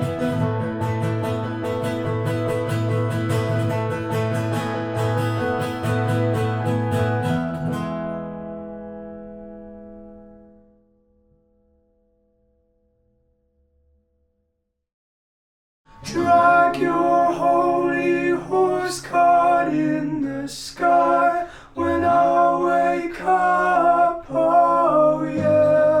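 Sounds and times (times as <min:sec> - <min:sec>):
acoustic guitar: 0:00.0 - 0:12.6, 0:15.9 - 0:26.0
voices singing unaccompanied: 0:16.0 - 0:26.0.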